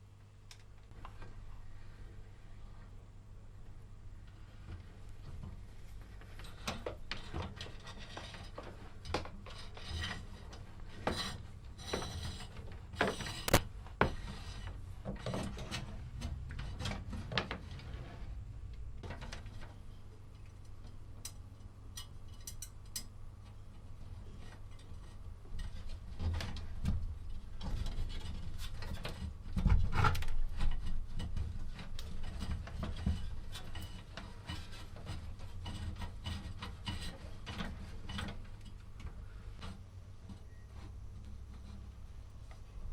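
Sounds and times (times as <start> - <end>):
rubbing and scraping: 5.3 - 18.4, 24.2 - 39.8
sharp clicks and knocks: 13.0 - 14.3.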